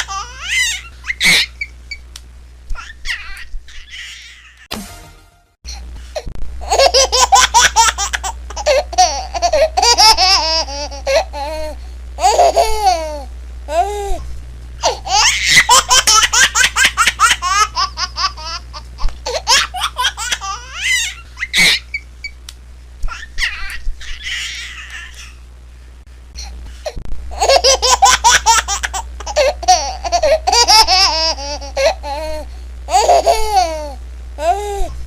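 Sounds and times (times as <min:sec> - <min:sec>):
baby laughing and squealing: 0:00.0 - 0:01.8, 0:02.8 - 0:04.7, 0:06.6 - 0:13.9, 0:14.8 - 0:22.1, 0:23.1 - 0:25.4, 0:27.3 - 0:34.6
low steady hum: 0:00.0 - 0:35.0.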